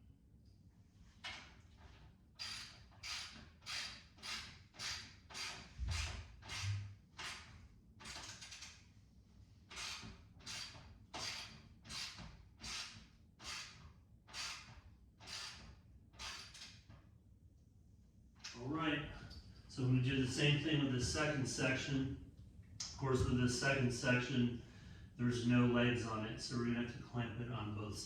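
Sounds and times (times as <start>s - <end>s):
ratchet wrench ratcheting: 2.4s - 8.8s, 9.7s - 16.8s.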